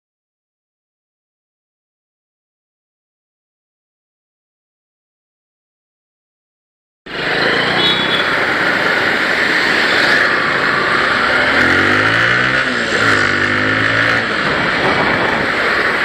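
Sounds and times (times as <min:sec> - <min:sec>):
motorcycle engine: 0:07.1 - 0:16.0
road noise: 0:07.1 - 0:16.0
wind rushing over microphone: 0:08.3 - 0:16.0.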